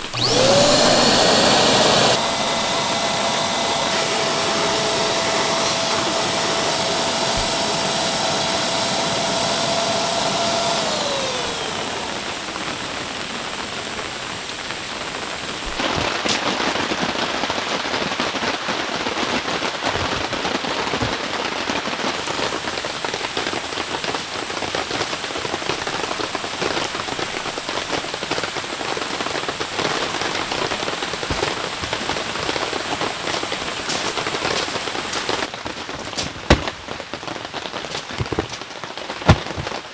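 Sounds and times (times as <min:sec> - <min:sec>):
small electric motor whining: 0:00.0 - 0:16.0.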